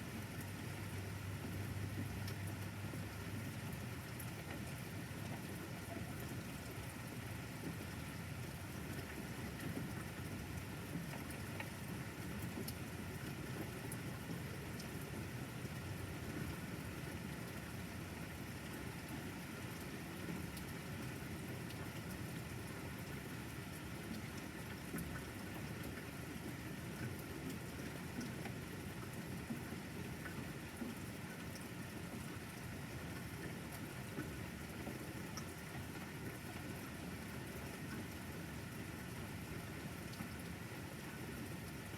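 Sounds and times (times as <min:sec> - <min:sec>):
steady rain: 0:00.0 - 0:41.9
drip ticks: 0:02.2 - 0:02.4.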